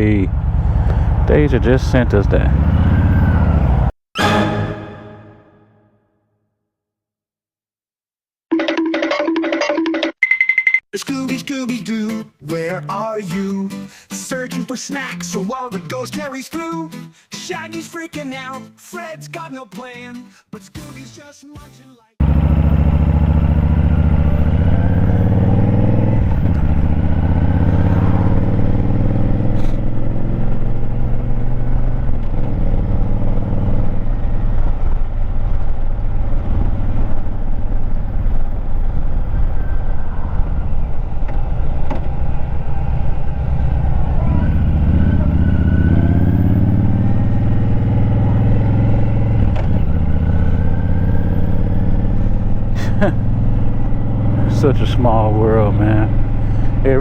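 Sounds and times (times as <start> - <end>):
motorcycle engine accelerating: 0.0 - 4.0, 22.2 - 57.0
wind and road rumble: 0.0 - 4.0, 22.2 - 57.0.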